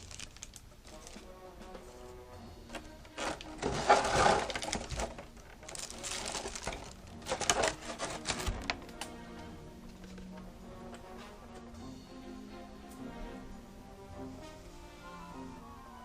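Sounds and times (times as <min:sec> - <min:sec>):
sharp crackles: 0:00.0 - 0:01.2, 0:04.2 - 0:07.6
plastic and cardboard rustling: 0:00.0 - 0:09.2.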